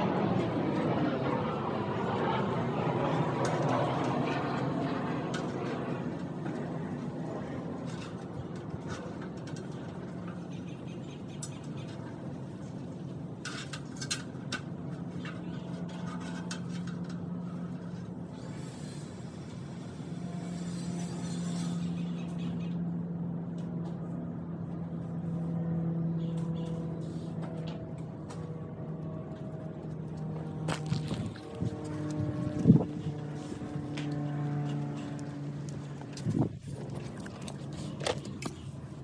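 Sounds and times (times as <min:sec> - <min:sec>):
machine hum with droning tone: 0:00.0 - 0:39.0.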